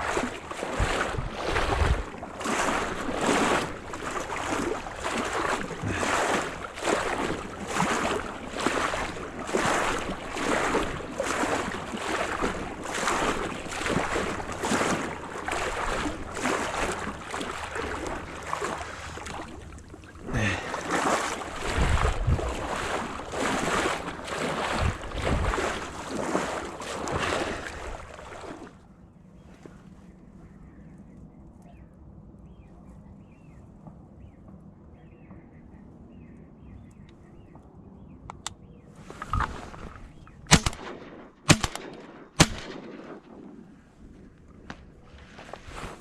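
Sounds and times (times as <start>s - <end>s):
wind thumps on microphone: 0.0s - 3.7s, 21.6s - 23.0s, 24.6s - 25.9s
splashing strokes through water: 0.0s - 28.8s, 39.0s - 46.0s.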